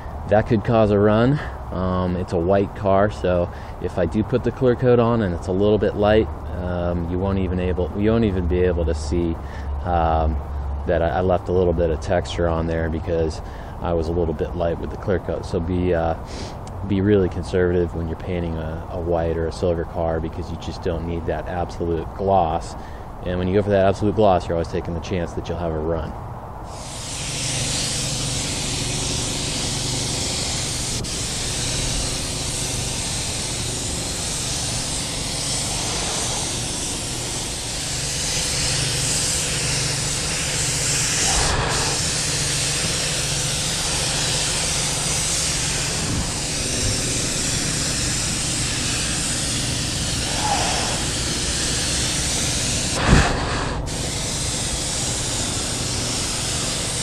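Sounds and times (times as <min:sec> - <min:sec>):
low hum: 0:26.1 - 0:57.0
spray gun hissing: 0:26.7 - 0:57.0.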